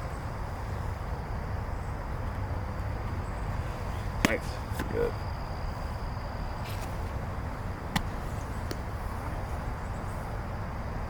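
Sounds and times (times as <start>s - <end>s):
sharp smack: 7.9s - 8.8s.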